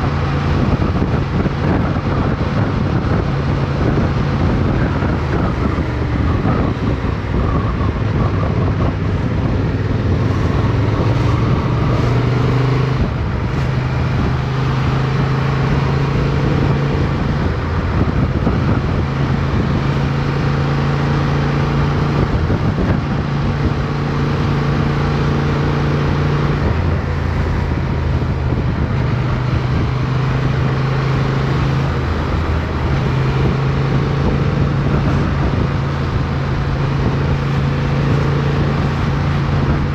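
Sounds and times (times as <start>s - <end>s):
motorcycle engine running: 0.0s - 20.7s
wind and road noise: 0.0s - 39.9s.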